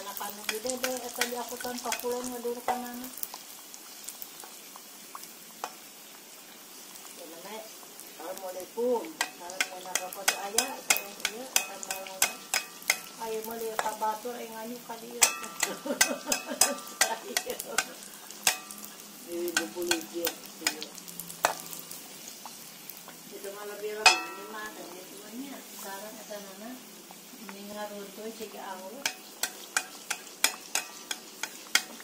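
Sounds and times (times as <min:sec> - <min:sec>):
oil sizzling: 0:00.0 - 0:32.0
metal spoon scraping a wok: 0:09.2 - 0:13.2, 0:15.2 - 0:20.8, 0:29.0 - 0:32.0.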